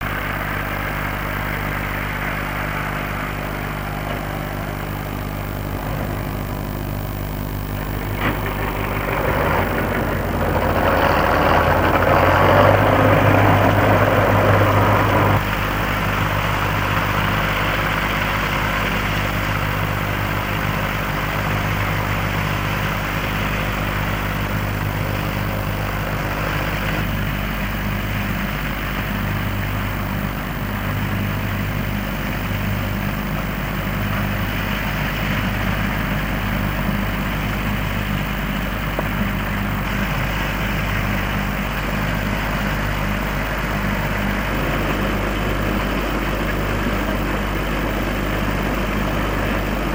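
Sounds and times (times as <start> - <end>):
combine harvester running: 0.0 - 49.9.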